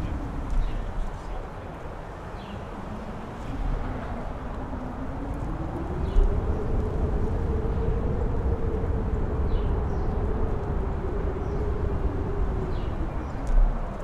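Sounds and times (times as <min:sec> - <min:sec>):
strong howling wind: 0:00.0 - 0:14.0.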